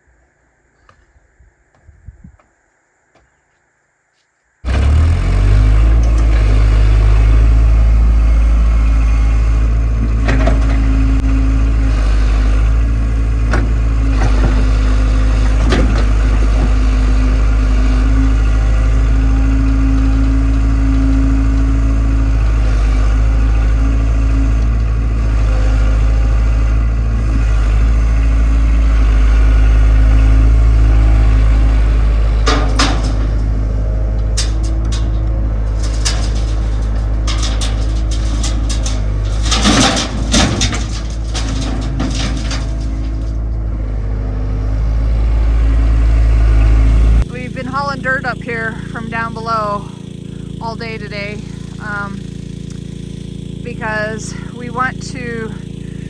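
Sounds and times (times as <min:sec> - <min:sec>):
excavator diesel engine running: 0:04.6 - 0:56.0.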